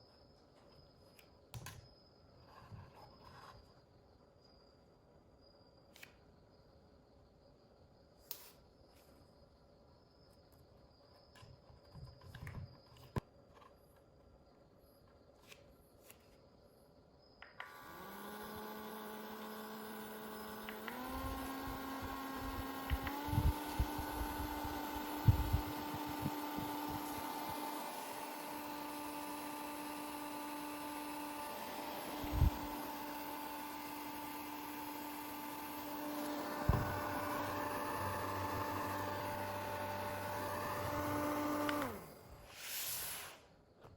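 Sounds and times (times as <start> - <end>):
fan motor whine and air rush: 17.7 - 42.9.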